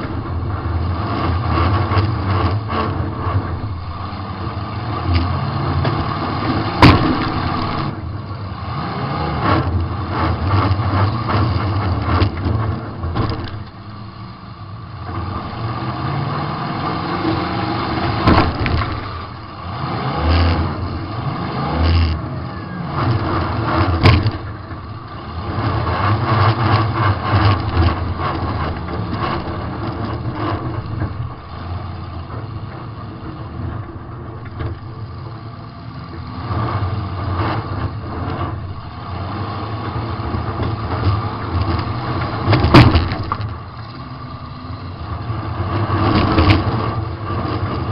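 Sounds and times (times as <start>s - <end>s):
car engine revving: 0.0s - 47.9s
metal-on-metal crash bangs: 6.8s - 7.5s.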